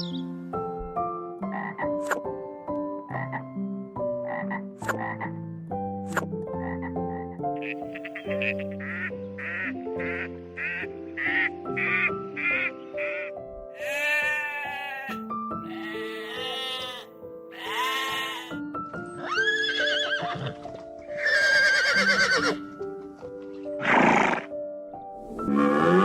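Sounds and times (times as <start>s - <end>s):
gentle background music: 0.0s - 26.0s
livestock bleating: 7.6s - 9.7s, 13.0s - 18.6s.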